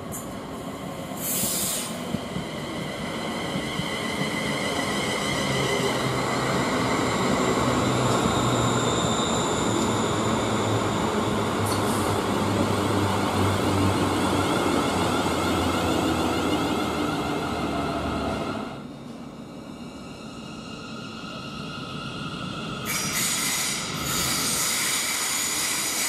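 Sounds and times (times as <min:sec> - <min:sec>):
train wheels rumbling on rails: 0:00.0 - 0:18.8
steady train tones: 0:00.0 - 0:26.0.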